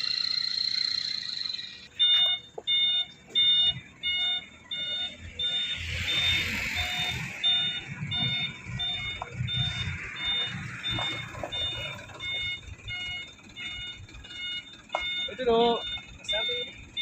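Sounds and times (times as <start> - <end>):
diesel engine rumble: 0.0 - 17.0
truck reversing alarm beeping: 0.0 - 17.0.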